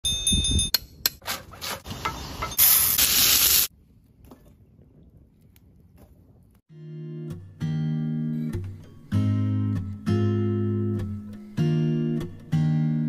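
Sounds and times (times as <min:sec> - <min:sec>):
rubbing and scraping: 0:01.2 - 0:02.1
loud hiss: 0:02.6 - 0:03.7
strummed guitar music: 0:06.7 - 0:13.0.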